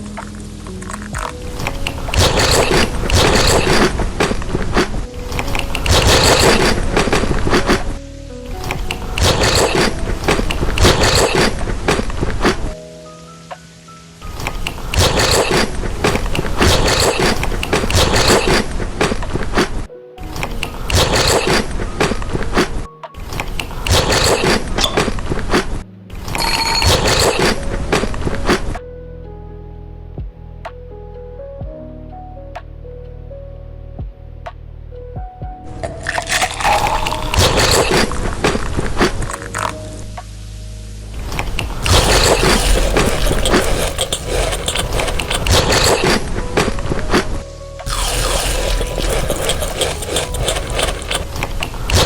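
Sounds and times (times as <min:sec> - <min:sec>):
soft background music: 0:00.0 - 0:52.0
crunching and chewing chocolate: 0:35.7 - 0:40.0, 0:41.4 - 0:46.3, 0:47.9 - 0:52.0.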